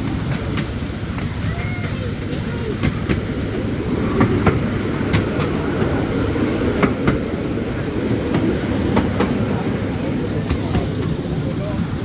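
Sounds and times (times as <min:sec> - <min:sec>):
miniature train rumbling: 0:00.0 - 0:12.0
wheels clicking over rail joints: 0:00.0 - 0:12.0.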